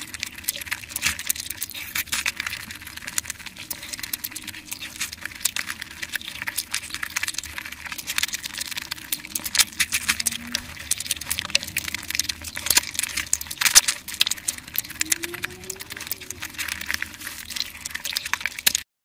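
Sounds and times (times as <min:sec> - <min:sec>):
wet chewing and lip smacking: 0:00.0 - 0:18.8.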